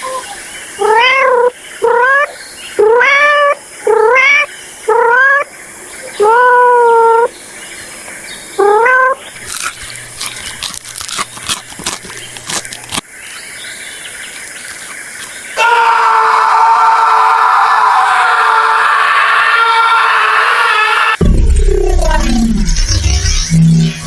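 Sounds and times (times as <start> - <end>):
cat meowing: 0.8 - 5.4, 6.2 - 7.3, 8.6 - 9.2
quick clicks: 9.4 - 13.0.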